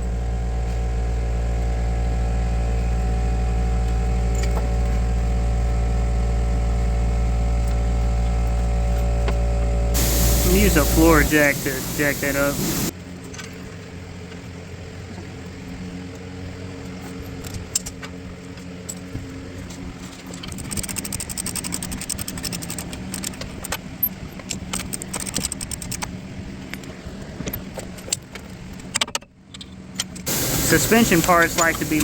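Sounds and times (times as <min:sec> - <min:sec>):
steady low hum: 0:10.0 - 0:12.9, 0:30.3 - 0:32.0.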